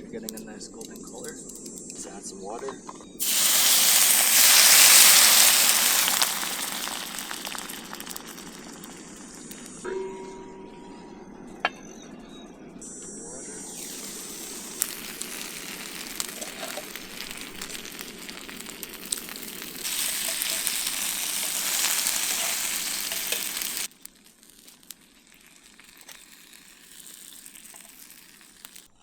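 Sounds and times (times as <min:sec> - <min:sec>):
dumplings sizzling in a pan: 0:03.2 - 0:09.9, 0:13.6 - 0:29.0
water boiling off hissing: 0:03.2 - 0:09.9, 0:12.8 - 0:29.0.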